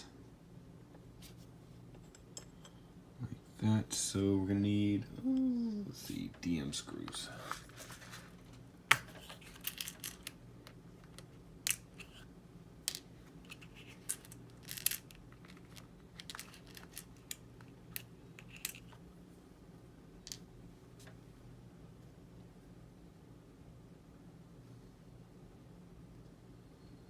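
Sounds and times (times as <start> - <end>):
steady low hum: 0.0 - 27.0
small plastic parts clicking: 12.8 - 19.0.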